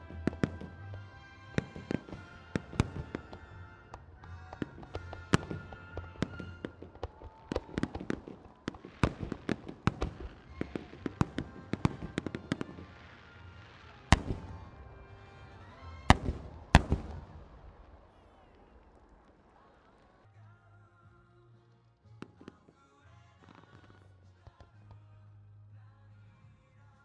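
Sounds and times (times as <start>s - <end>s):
music from loudspeakers: 0.0s - 6.8s
loud echoing bangs: 0.0s - 7.0s, 7.6s - 12.9s, 14.1s - 20.1s
aerial fireworks bursting: 0.0s - 20.3s.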